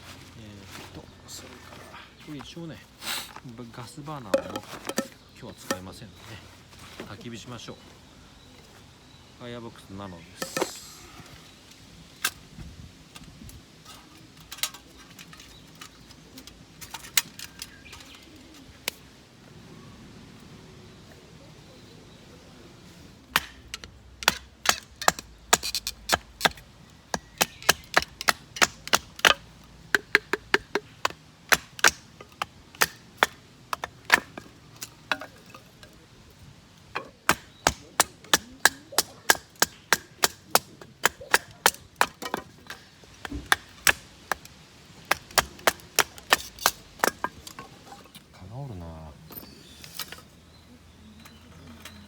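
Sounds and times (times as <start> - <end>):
firewood being split: 23.3 - 48.5.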